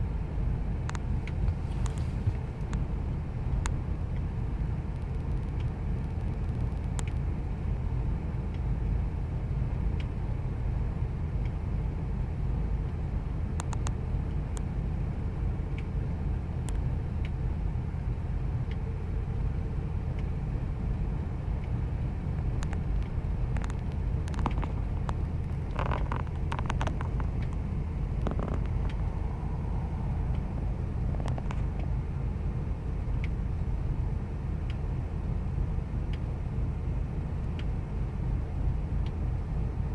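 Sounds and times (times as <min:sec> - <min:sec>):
car engine idling: 0:00.0 - 0:39.9
light clicks: 0:04.9 - 0:07.3.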